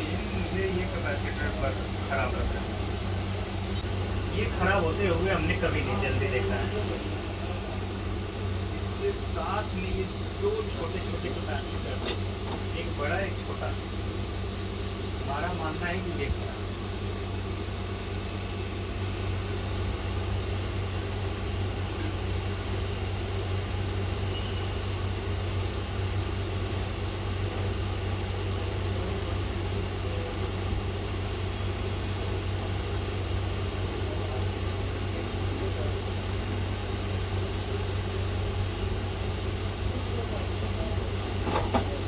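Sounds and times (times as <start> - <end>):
fan-like rush: 0.0 - 11.0
low electrical hum: 0.0 - 42.0.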